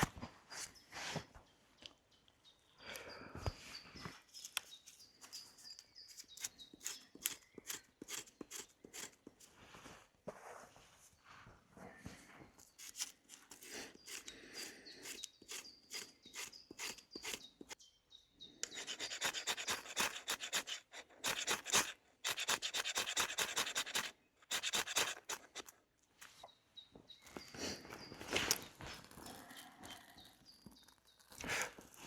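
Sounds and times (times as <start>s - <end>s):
faint bird chirps: 0.5s - 9.1s, 11.1s - 20.8s, 26.2s - 31.4s
rasping scraping strokes: 5.0s - 9.6s, 12.8s - 17.8s, 18.6s - 25.7s.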